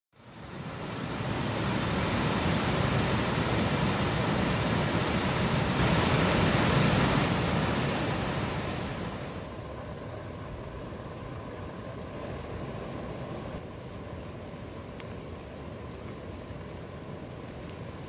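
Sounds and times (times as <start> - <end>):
steady rushing noise: 0.2 - 13.8.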